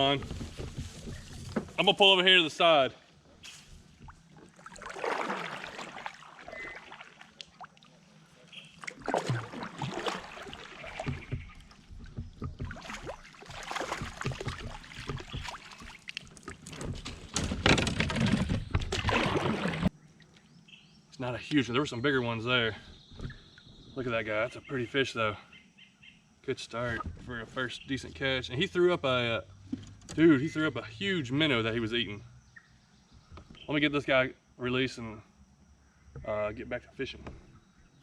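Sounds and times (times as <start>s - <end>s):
knocks and scrapes against hull: 0.0s - 2.1s, 9.0s - 19.9s, 22.8s - 24.0s, 26.8s - 27.8s
paddle splashes: 3.0s - 19.9s.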